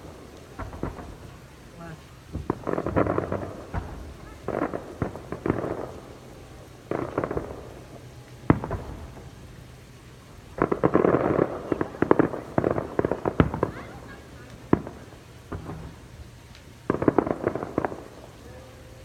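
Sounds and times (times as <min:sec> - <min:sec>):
firework bang: 0:00.0 - 0:06.2, 0:06.9 - 0:07.8, 0:08.5 - 0:09.3, 0:10.6 - 0:16.2, 0:16.9 - 0:18.2
fireworks crackling: 0:00.0 - 0:19.0.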